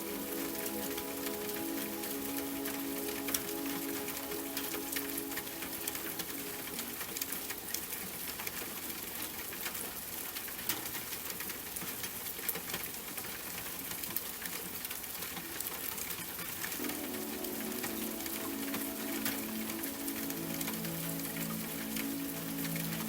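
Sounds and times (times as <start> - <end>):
rain drops ticking on hard surface: 0.0 - 23.0.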